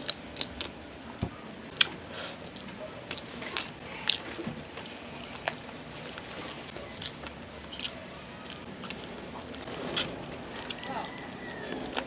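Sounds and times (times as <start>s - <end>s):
chewing with sharp clicks: 7.0s - 9.6s.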